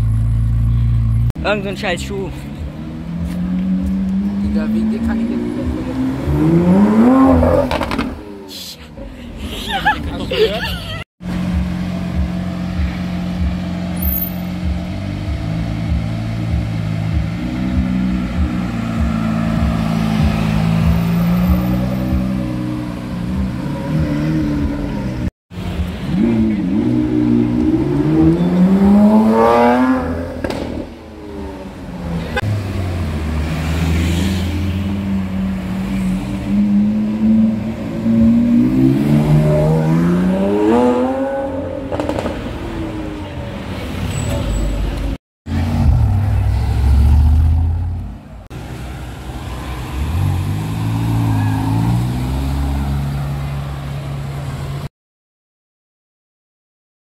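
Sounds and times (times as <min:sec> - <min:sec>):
supercar engines accelerating: 0:02.4 - 0:08.5.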